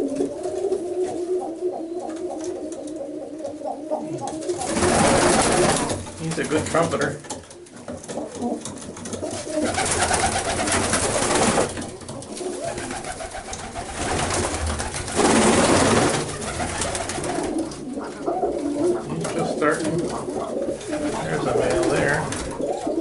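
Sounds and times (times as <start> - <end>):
pigeons cooing: 0.0 - 23.0
rustling noise: 4.2 - 23.0.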